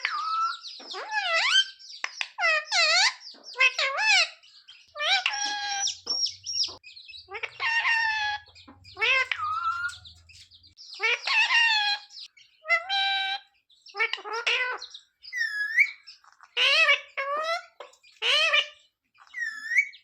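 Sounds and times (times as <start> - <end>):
parrot shrill swooping calls: 6.7 - 10.0.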